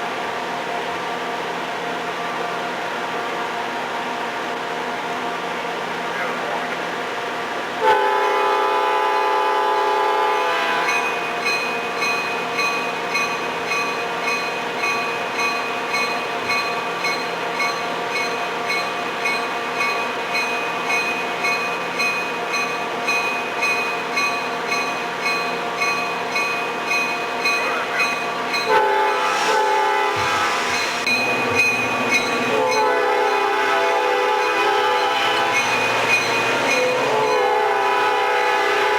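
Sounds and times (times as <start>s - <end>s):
train rumble: 0.0s - 38.9s
locomotive horn: 7.8s - 11.0s, 28.7s - 30.7s, 32.5s - 35.8s, 36.5s - 38.9s
railroad bell ringing: 10.6s - 38.9s.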